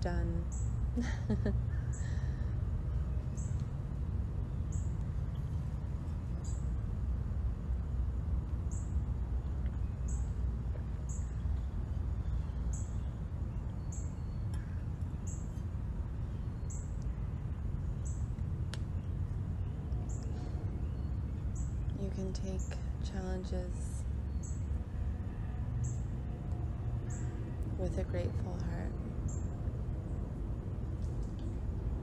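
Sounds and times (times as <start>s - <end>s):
steady low rumble: 0.0s - 32.0s
bird chirping: 1.8s - 3.8s, 4.4s - 6.8s, 8.6s - 24.8s.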